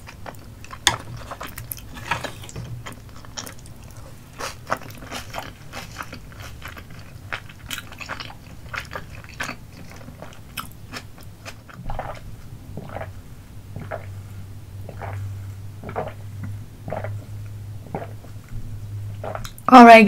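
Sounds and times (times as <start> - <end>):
chewing sticky rice cakes: 0.0 - 14.2, 14.8 - 18.5
low hum: 11.8 - 20.0
swallowing: 12.8 - 13.2, 13.8 - 14.2, 14.8 - 18.5, 19.1 - 19.6
drinking through a straw: 14.8 - 16.2, 16.8 - 17.3, 19.2 - 19.6.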